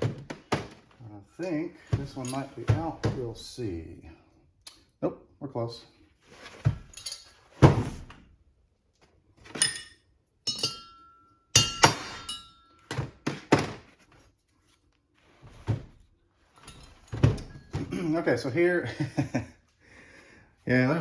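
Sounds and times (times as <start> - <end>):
hammer striking metal punch: 10.5 - 12.7.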